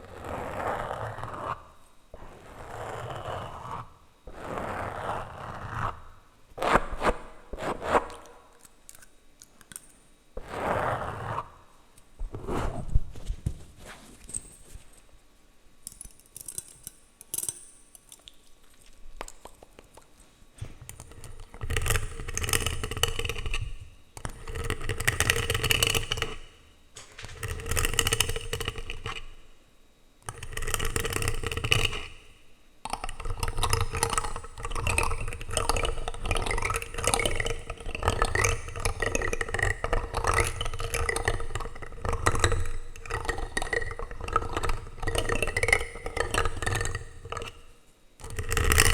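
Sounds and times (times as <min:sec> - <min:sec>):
plastic utensils scraping microphone: 0:33.1 - 0:48.9.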